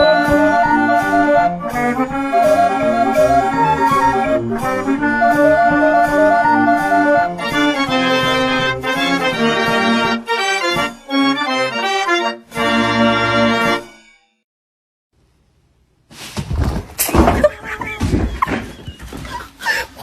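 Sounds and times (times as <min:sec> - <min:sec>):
accordion-like reed instrument music: 0:00.0 - 0:13.9.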